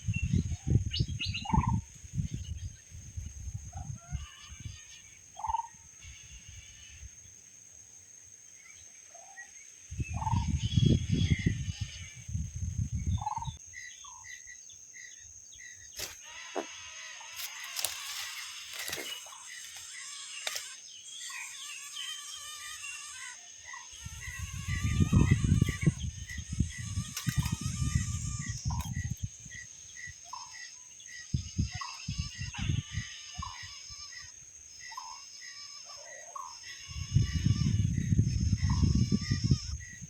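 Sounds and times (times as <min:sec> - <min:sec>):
wind gusts on microphone: 0:00.0 - 0:06.8, 0:09.9 - 0:13.6, 0:24.0 - 0:29.9, 0:31.3 - 0:34.0, 0:36.8 - 0:40.0
birds calling: 0:13.1 - 0:40.0
rustling leaves and twigs: 0:15.9 - 0:21.6, 0:24.1 - 0:30.5.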